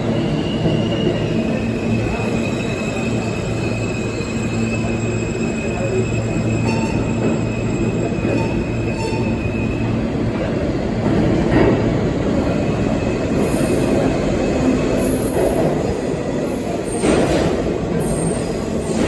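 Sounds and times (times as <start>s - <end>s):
high-pitched wheel squeals: 0.2s - 9.8s.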